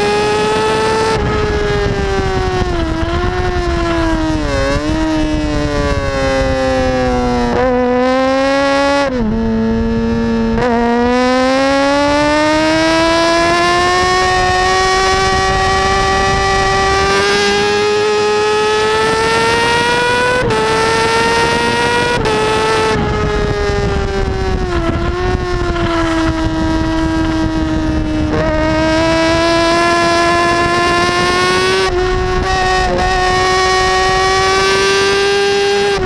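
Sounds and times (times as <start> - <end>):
motorcycle engine at high revs: 0.0 - 36.0
wind rush: 0.0 - 36.0.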